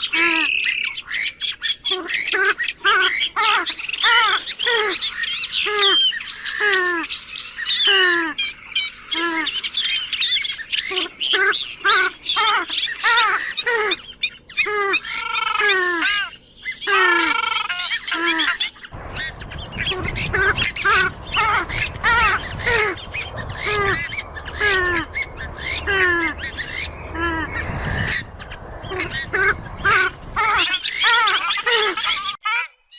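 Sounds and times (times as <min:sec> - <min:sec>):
swamphen calling: 0:00.0 - 0:32.8
low rumbling noise: 0:18.9 - 0:32.4.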